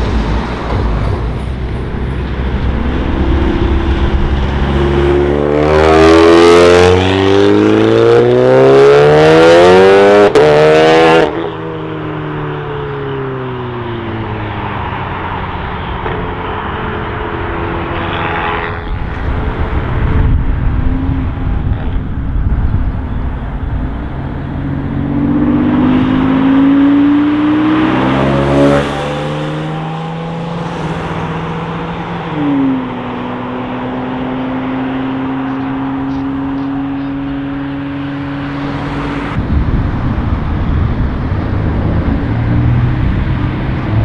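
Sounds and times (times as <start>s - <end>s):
cars accelerating away: 0.0s - 11.6s, 23.8s - 44.0s.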